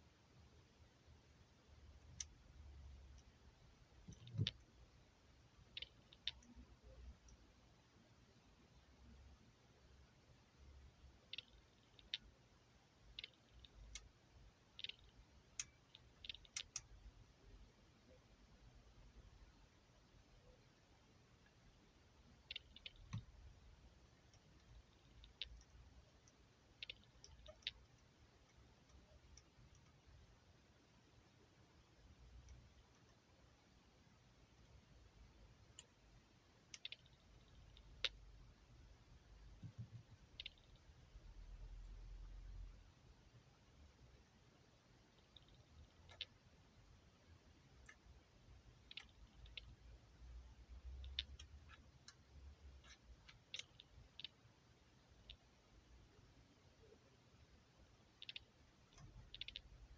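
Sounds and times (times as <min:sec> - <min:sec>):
sharp clicks: 0:04.0 - 0:04.7, 0:05.7 - 0:07.4, 0:13.0 - 0:14.1, 0:14.8 - 0:17.0, 0:22.3 - 0:23.4, 0:24.2 - 0:30.0, 0:36.7 - 0:38.2, 0:39.5 - 0:40.9, 0:45.2 - 0:46.4, 0:48.8 - 0:49.8, 0:50.8 - 0:54.4, 0:58.1 - 0:59.9.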